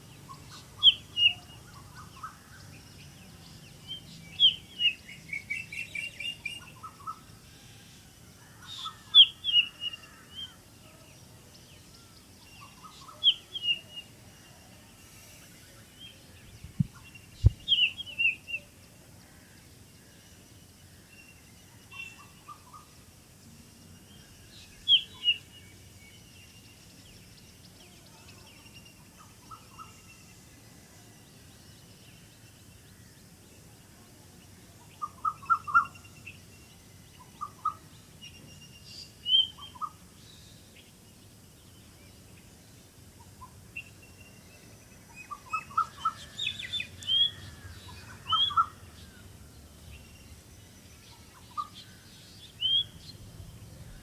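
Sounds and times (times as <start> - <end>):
faint steady hiss: 0.0 - 54.0
low thumps: 16.6 - 17.7.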